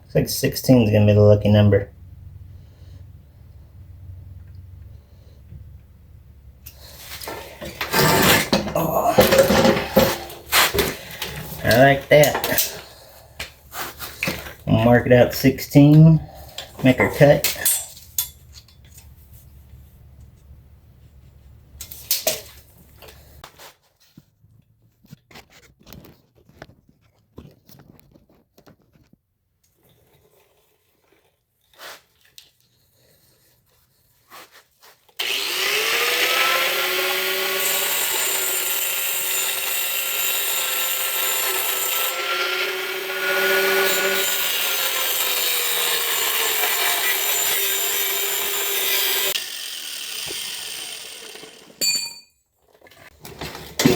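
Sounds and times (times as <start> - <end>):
power tool cutting: 7.2 - 12.9, 35.2 - 51.8.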